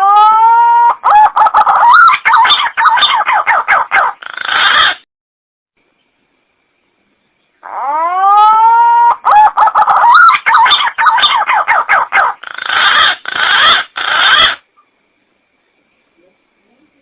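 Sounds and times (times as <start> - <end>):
pigeon calling: 0.0 - 5.0, 7.6 - 14.6.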